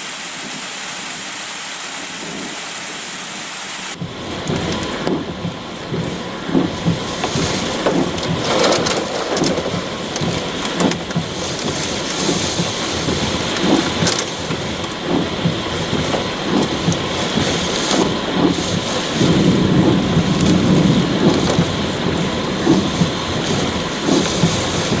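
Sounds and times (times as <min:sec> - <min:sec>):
wind and rain rushing: 0:00.0 - 0:25.0.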